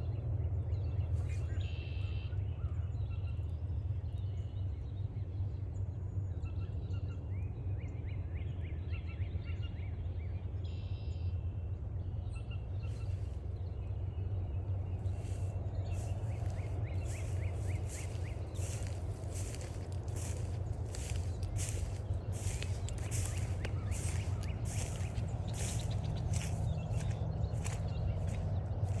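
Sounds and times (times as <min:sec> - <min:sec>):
low rumble: 0:14.8 - 0:29.0
footsteps on a trail: 0:15.0 - 0:29.0
wild birds calling: 0:15.1 - 0:29.0.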